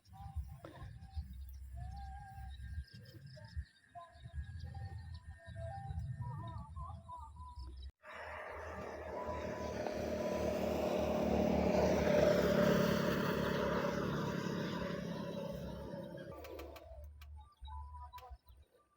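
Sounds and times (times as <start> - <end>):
motor vehicle passing by: 8.0 - 17.1.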